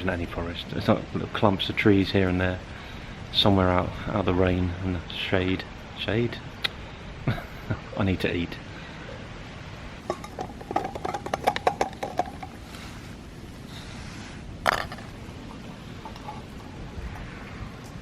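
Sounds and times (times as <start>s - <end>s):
metal clinks and rattles: 10.0s - 12.6s.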